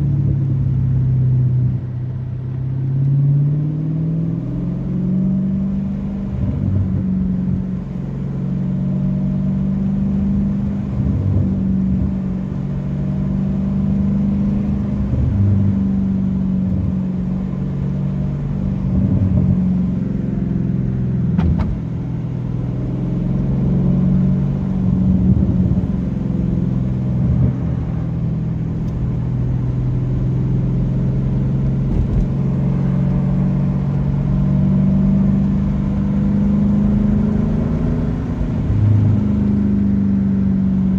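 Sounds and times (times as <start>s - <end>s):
car exhaust drone: 0.0s - 40.9s.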